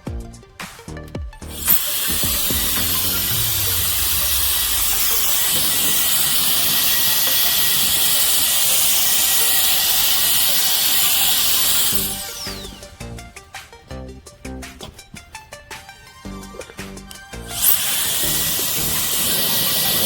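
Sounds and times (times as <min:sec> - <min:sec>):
electric air duster blowing: 0:01.4 - 0:13.3, 0:17.2 - 0:20.0.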